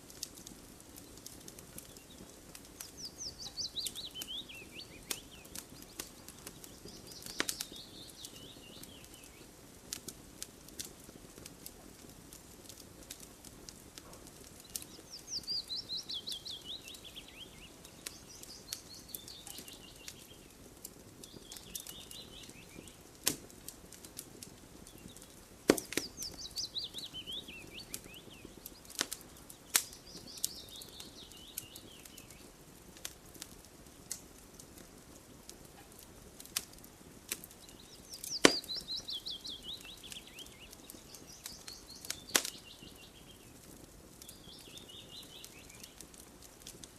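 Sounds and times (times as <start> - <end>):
campfire crackling and popping: 0.0 - 46.9
songbird singing: 0.9 - 9.6, 14.1 - 23.1, 24.7 - 32.6, 37.4 - 46.8.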